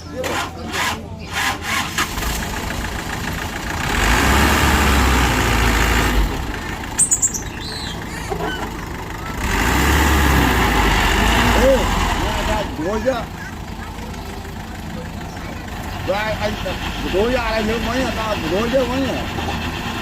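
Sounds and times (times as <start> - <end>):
heavy diesel engine running: 0.0 - 20.0
high-pitched squeaks: 7.0 - 9.5.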